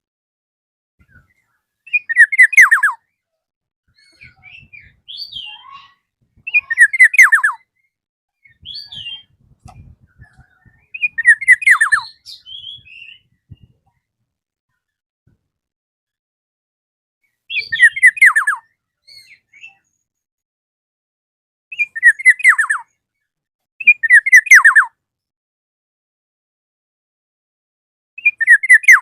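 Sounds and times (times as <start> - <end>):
soft short bird calls: 3.9 - 14.0.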